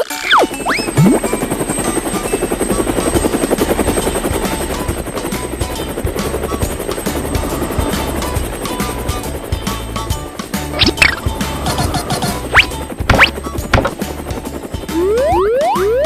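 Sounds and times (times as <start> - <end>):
cartoon chopping whir: 0.0 - 1.2, 10.8 - 14.0
background music: 0.0 - 16.0.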